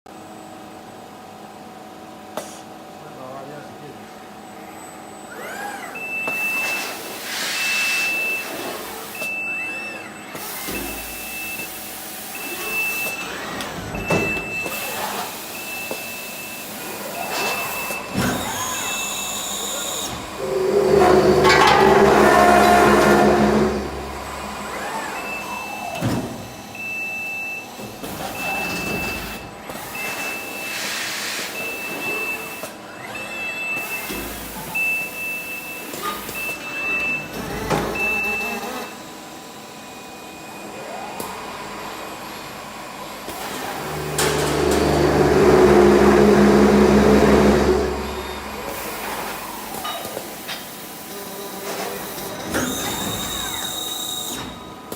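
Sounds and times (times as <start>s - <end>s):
robotic drilling machinery running: 9.9s - 26.7s, 43.2s - 54.9s
steady motor hum: 16.7s - 27.0s, 37.3s - 54.9s.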